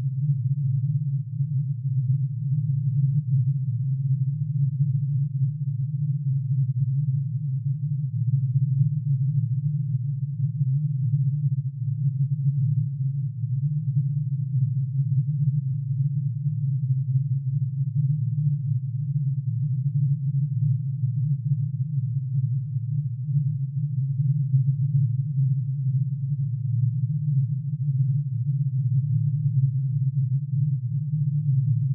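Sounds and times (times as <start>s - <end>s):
low sine-wave drone: 0.0s - 31.9s.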